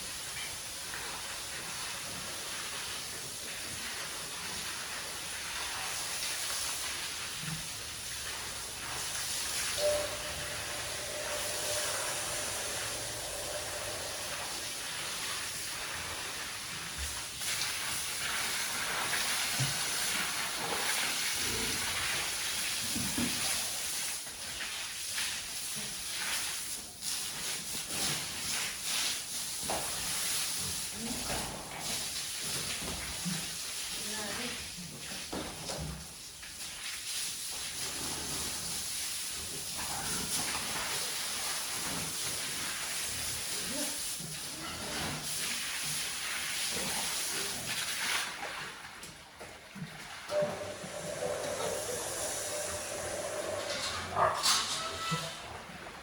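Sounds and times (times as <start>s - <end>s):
steady hiss: 0.0s - 31.0s, 50.3s - 54.4s
short faint tone: 9.8s - 15.0s, 50.3s - 55.5s.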